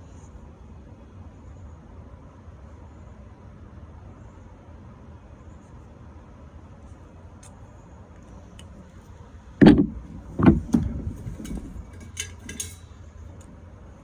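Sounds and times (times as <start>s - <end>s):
steady low rumble: 8.6s - 14.0s
sudden knocks: 9.6s - 12.0s.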